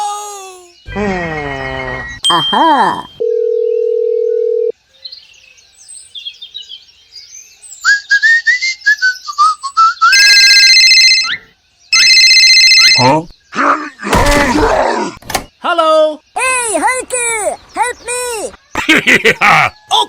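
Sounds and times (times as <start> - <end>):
whistled sliding notes: 7.8 - 10.4.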